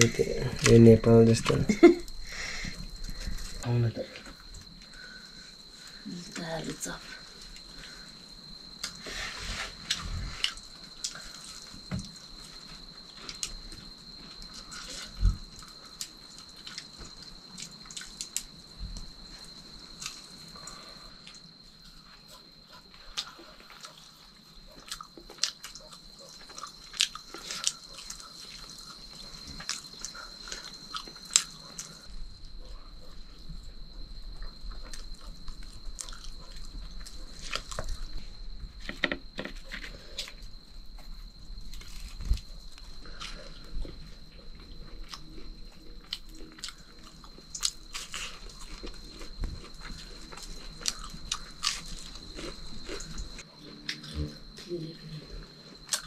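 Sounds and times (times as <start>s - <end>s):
biting and chewing clicks: 24.7s - 32.1s, 34.4s - 38.1s, 44.6s - 54.2s.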